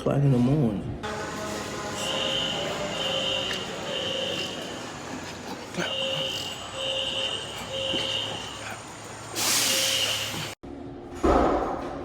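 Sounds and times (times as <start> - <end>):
fire alarm beeps: 1.2 - 5.1, 5.9 - 8.7
loud hiss: 9.3 - 10.6.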